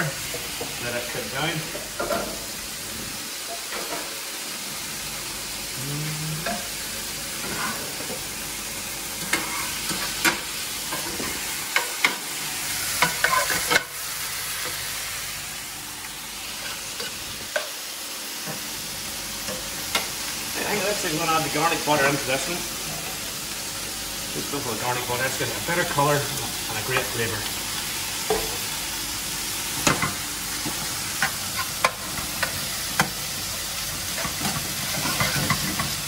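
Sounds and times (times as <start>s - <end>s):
meat sizzling in pans: 0.0s - 36.0s
utensils scraping pans: 7.4s - 8.1s, 34.1s - 36.0s.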